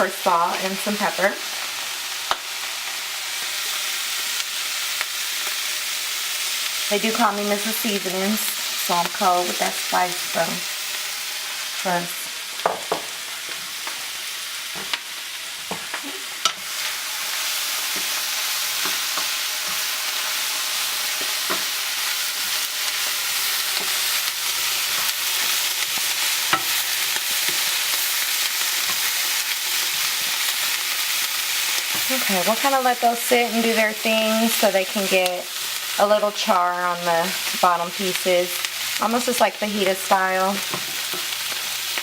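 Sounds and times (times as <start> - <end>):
vegetables sizzling in a pan: 0.0 - 42.0
utensil stirring in a pan: 15.7 - 33.1, 40.1 - 42.0.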